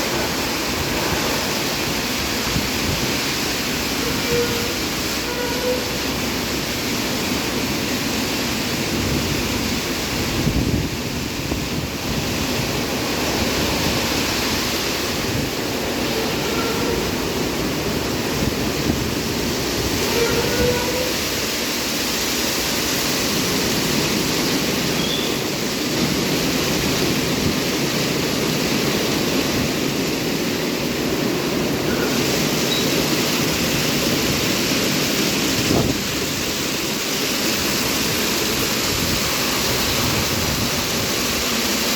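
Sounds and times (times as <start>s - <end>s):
car wash machinery: 0.0s - 41.9s
spraying water: 0.0s - 41.9s.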